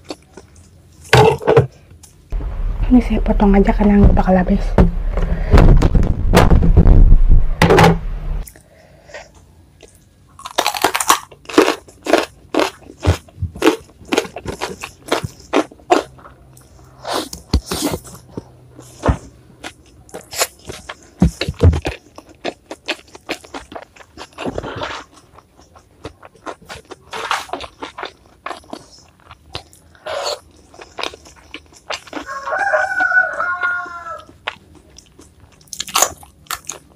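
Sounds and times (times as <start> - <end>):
chewing crunchy food: 0.0 - 1.1, 9.4 - 36.9
low thumping handling noise: 2.4 - 8.4.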